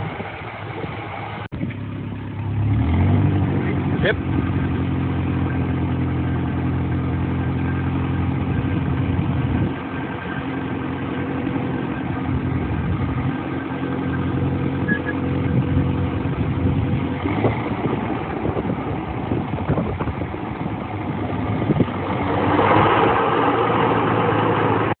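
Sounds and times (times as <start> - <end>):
tractor engine running: 0.0 - 25.0
rough rushing sound: 8.2 - 25.0.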